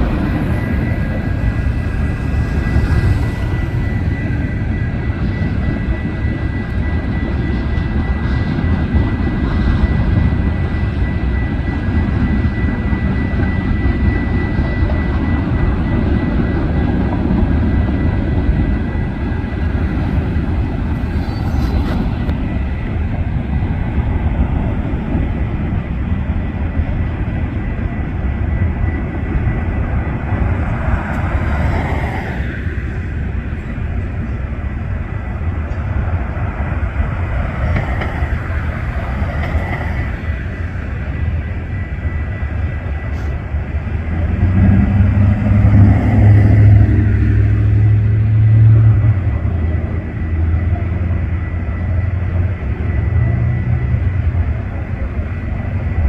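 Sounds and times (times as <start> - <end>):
train rumbling past: 0.0 - 56.0
thin high whine: 17.7 - 23.9.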